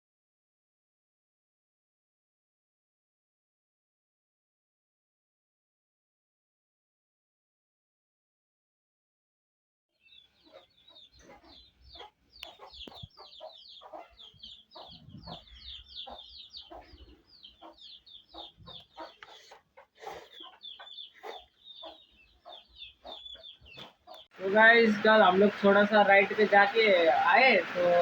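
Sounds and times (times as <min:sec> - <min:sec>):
chicks peeping: 0:10.0 - 0:24.6
chickens clucking: 0:10.3 - 0:28.0.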